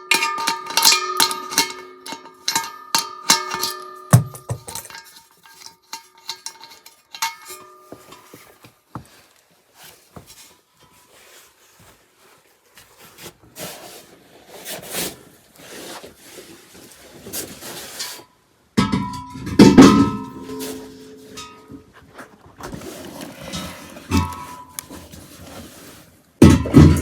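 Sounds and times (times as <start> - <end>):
metal cookware clinking: 0.1 - 8.3
ringing clink: 2.5 - 5.2
scraping and rubbing: 9.7 - 18.3, 21.9 - 26.2.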